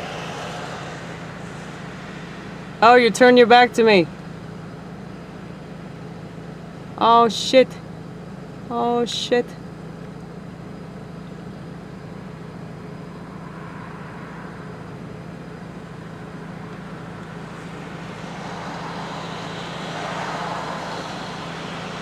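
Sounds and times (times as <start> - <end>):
vehicle passing by: 0.0 - 5.6, 12.1 - 22.0
road traffic hum: 0.0 - 22.0.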